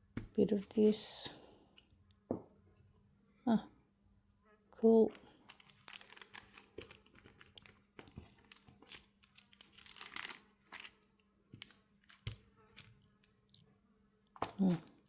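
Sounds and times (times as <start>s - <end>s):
crinkling rustle: 5.1s - 13.7s.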